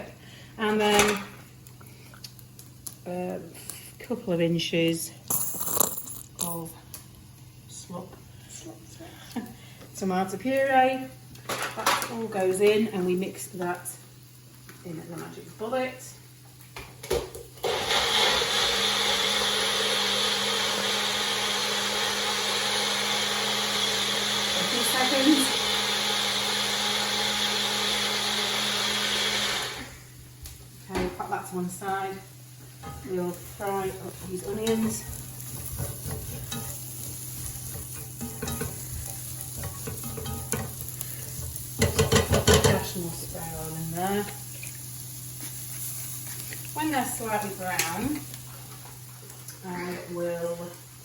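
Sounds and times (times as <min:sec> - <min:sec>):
onions sizzling in a pan: 0:06.8 - 0:51.0
blender motor running: 0:17.6 - 0:30.2.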